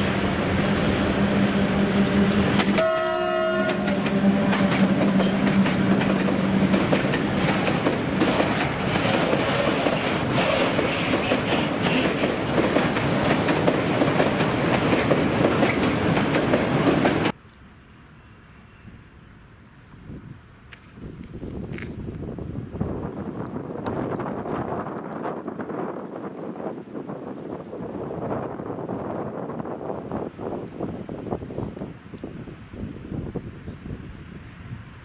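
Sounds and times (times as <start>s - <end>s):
wheels clicking over rail joints: 0.0s - 17.4s
locomotive humming: 0.0s - 20.2s
train horn blast: 1.0s - 5.9s.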